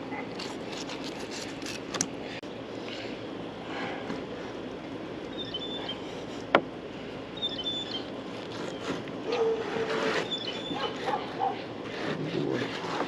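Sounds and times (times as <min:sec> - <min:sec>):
outdoor background noise: 0:00.0 - 0:13.0
high bird chirps: 0:05.3 - 0:06.0, 0:07.4 - 0:08.1
dog whining: 0:08.7 - 0:12.7.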